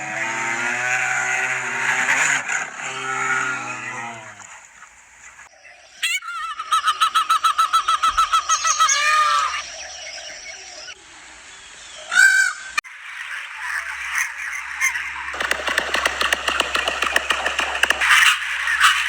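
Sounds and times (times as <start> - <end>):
pulsed animal calls: 0.0 - 10.8, 13.1 - 19.0
sharp click: 15.3 - 18.4.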